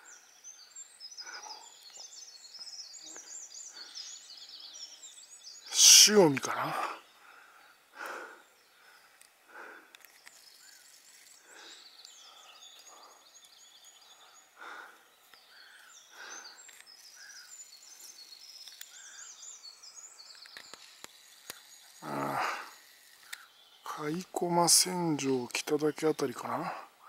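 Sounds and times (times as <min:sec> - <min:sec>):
birds chirping faintly: 0:00.0 - 0:27.0.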